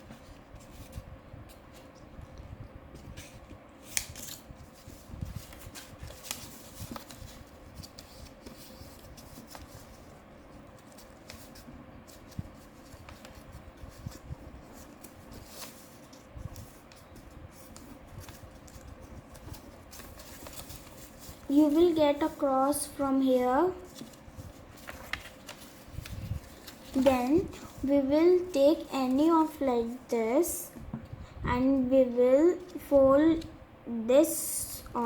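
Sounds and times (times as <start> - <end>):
paper being folded and creased: 3.0 - 30.0.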